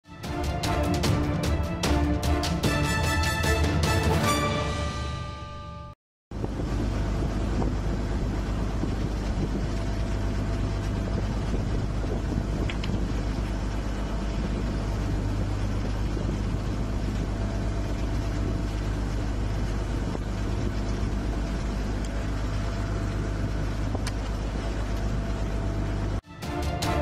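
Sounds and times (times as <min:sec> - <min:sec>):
music: 0:00.0 - 0:06.0, 0:26.2 - 0:27.0
boat engine humming: 0:00.0 - 0:27.0.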